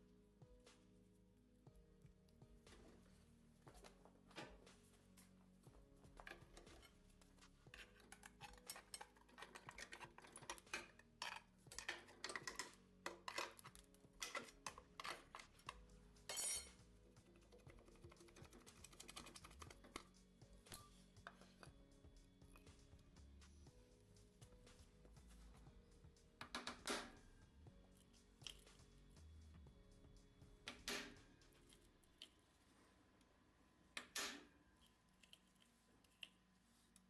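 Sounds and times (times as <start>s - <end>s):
quiet background music: 0.0s - 37.0s
metal tools clinking: 16.3s - 16.8s.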